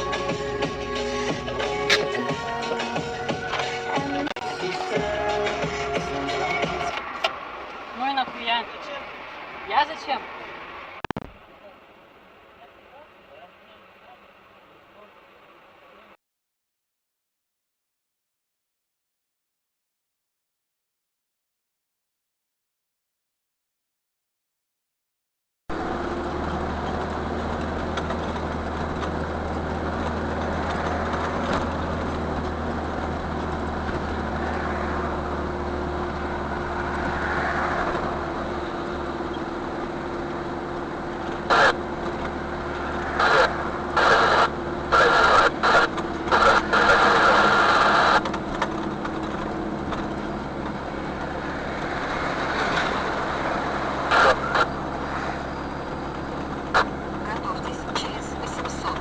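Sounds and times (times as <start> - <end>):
vehicle engine running: 0.0 - 8.8, 25.7 - 59.0.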